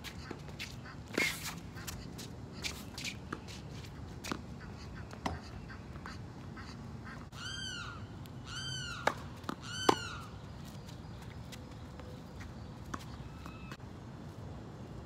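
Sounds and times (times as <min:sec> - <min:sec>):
bird calling: 0:04.0 - 0:11.3, 0:12.0 - 0:13.8
tennis ball struck and bouncing: 0:09.0 - 0:10.2.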